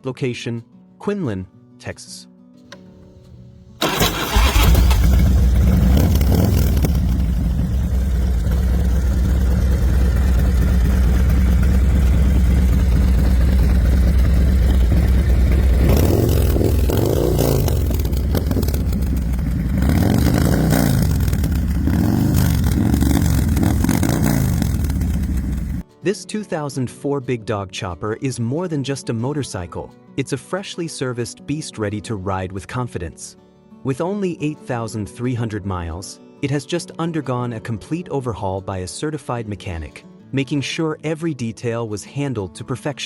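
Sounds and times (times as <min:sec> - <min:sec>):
motorcycle engine revving: 0:02.8 - 0:25.8.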